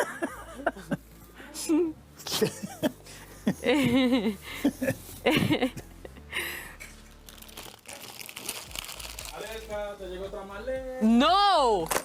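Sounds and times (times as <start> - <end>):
rustling and crinkling: 6.9 - 9.9.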